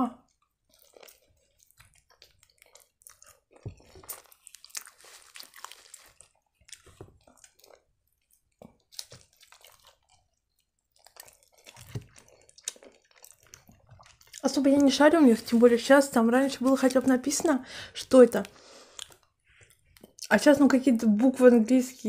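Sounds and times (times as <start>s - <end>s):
person chewing food: 0.2s - 15.6s, 16.2s - 20.3s.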